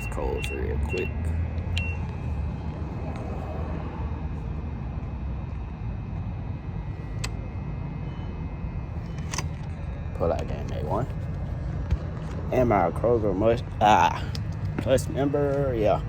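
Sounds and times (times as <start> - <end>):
keypad beep: 0.0 - 2.1
low outdoor rumble: 0.0 - 16.0.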